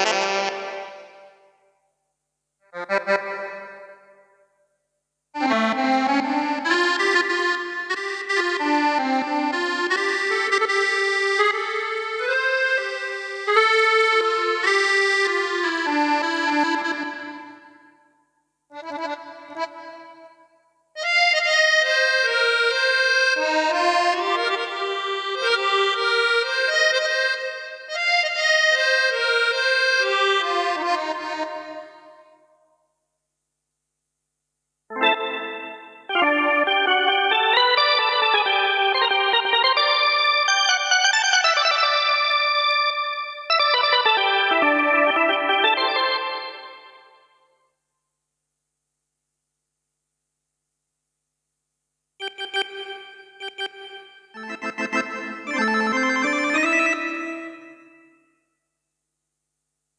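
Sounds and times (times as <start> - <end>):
accordion melody on keyboard: 0.0 - 1.5, 2.6 - 4.4, 5.4 - 18.0, 18.7 - 20.4, 21.0 - 32.4, 34.9 - 47.4, 52.2 - 58.3.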